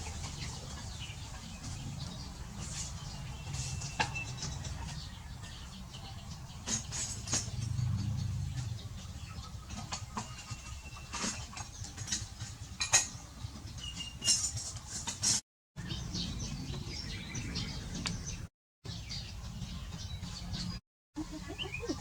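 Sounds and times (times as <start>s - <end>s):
small birds chirping: 0.0s - 15.2s, 15.8s - 22.0s
steady low rumble: 7.4s - 9.8s.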